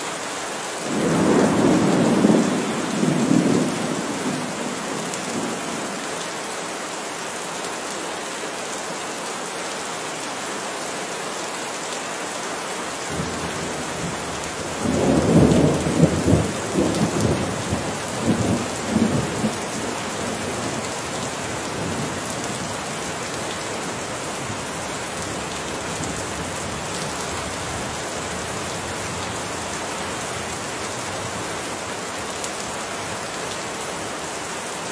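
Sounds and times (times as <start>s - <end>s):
steady rain: 0.0s - 34.9s
thunder rumbling: 0.9s - 5.8s, 13.1s - 22.6s.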